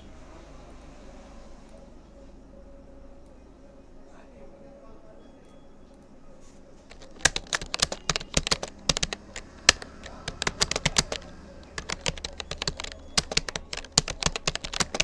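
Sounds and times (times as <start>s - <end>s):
computer keyboard keys clicking: 6.9s - 15.0s.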